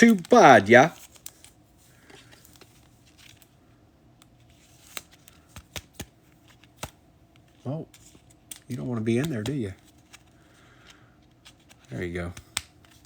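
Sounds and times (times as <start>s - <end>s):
cards and sleeves rustling: 0.0s - 13.0s.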